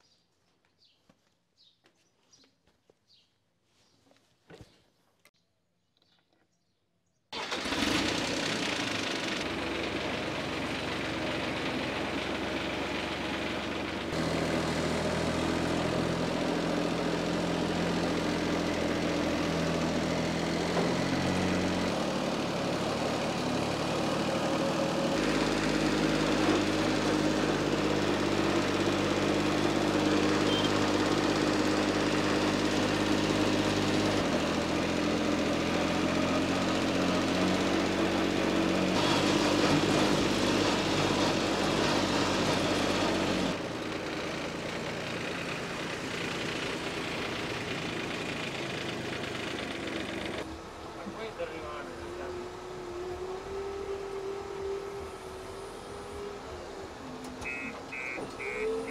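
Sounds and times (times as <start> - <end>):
heavy machinery engine running: 7.4 - 58.9.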